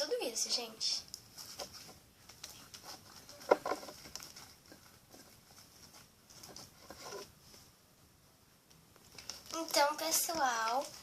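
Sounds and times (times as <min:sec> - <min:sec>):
foam beads pattering: 0:09.1 - 0:11.0.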